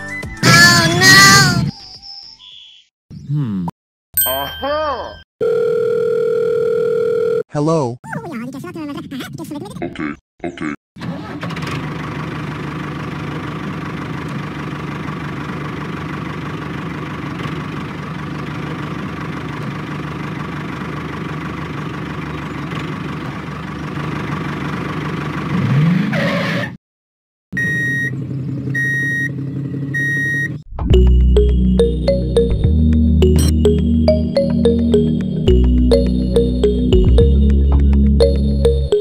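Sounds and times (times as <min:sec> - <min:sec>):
tractor engine idling: 0:12.2 - 0:25.4.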